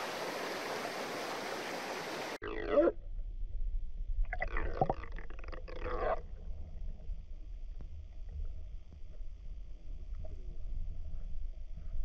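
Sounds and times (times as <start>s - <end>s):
rushing water: 0.0s - 2.8s
low hum: 2.4s - 12.0s.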